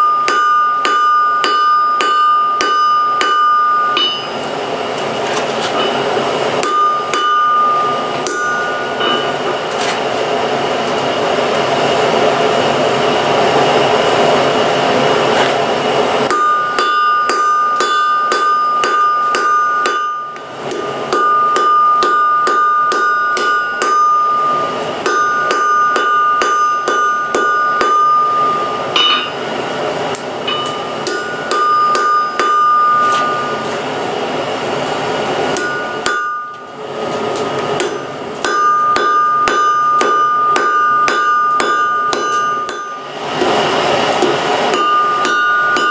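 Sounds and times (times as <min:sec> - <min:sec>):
hammer striking steel on anvil: 0:00.0 - 0:04.4, 0:05.7 - 0:09.9, 0:16.2 - 0:29.5, 0:30.1 - 0:33.9, 0:35.5 - 0:45.9
anvil ringing: 0:00.0 - 0:04.5, 0:05.8 - 0:09.6, 0:16.2 - 0:29.5, 0:30.4 - 0:33.9, 0:35.5 - 0:36.8, 0:37.8 - 0:43.2, 0:44.7 - 0:45.9.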